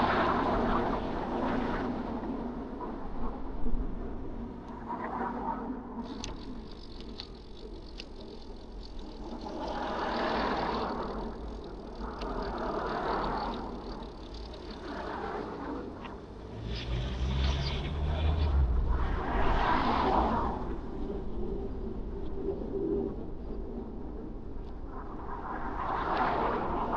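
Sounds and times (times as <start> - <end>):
low engine rumble: 6.0 - 22.0
cars passing by: 10.0 - 20.8.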